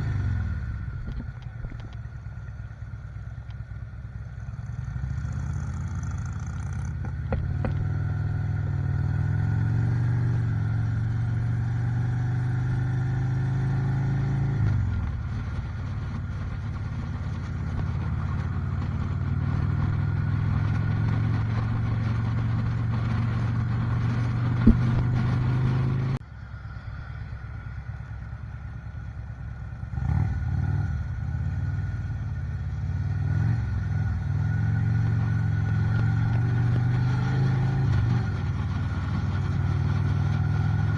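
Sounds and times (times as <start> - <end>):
motorcycle engine running: 0.0 - 26.2.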